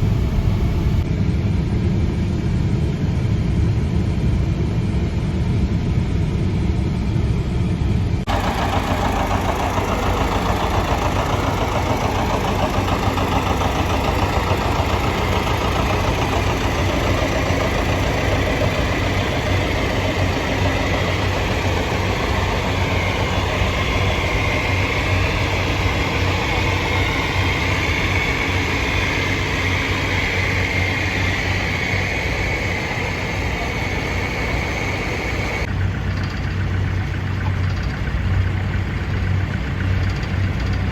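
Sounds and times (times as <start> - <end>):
tractor engine running: 0.0 - 1.1, 8.3 - 40.9
high whine: 0.0 - 1.4, 8.3 - 37.6.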